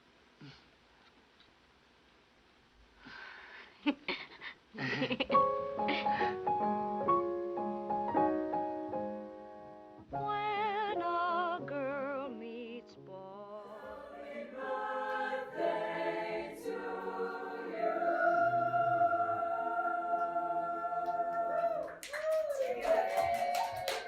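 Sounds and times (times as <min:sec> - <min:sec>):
choir-like chords: 0:13.5 - 0:22.0.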